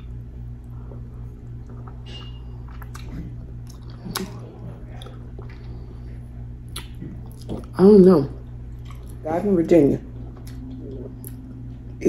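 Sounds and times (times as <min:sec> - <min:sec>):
low steady hum: 0:00.0 - 0:12.0
wet chewing and lip smacking: 0:01.5 - 0:06.0, 0:06.6 - 0:07.8, 0:08.7 - 0:09.2, 0:10.2 - 0:12.0.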